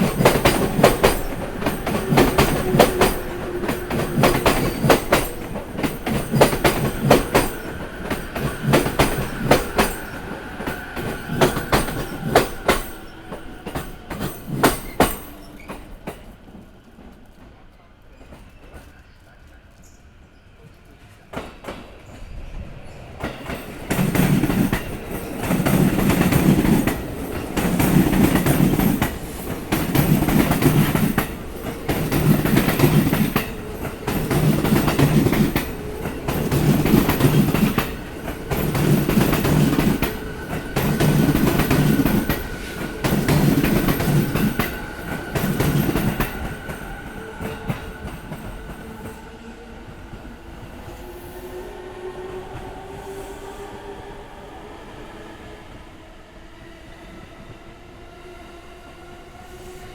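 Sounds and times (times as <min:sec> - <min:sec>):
train wheels clattering over rail joint: 0:00.0 - 0:16.2, 0:23.2 - 0:46.8.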